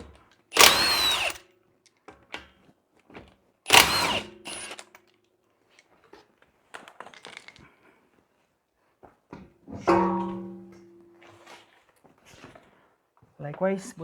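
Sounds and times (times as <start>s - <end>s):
impact wrench bursts: 0.5s - 1.4s, 3.7s - 4.9s.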